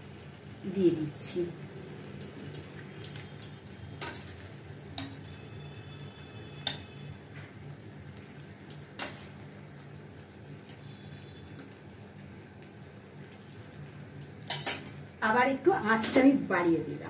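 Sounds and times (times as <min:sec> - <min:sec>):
metal utensil clinking on pan: 0:14.4 - 0:15.0.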